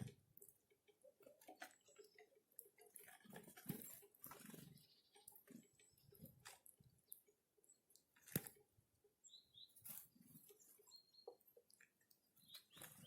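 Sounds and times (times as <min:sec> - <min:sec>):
soft high bird chirps: 0:09.1 - 0:13.0.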